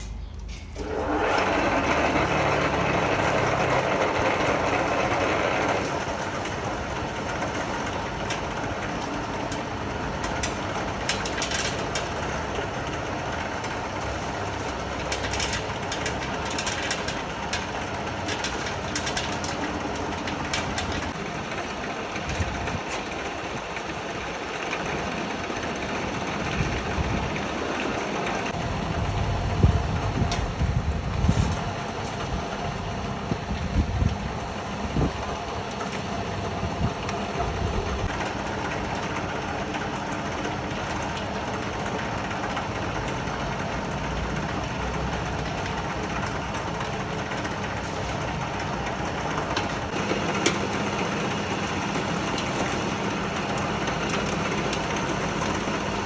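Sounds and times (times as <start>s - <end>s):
feed grinder running: 0.8s - 56.0s
grain ticking and rattling: 2.4s - 28.6s.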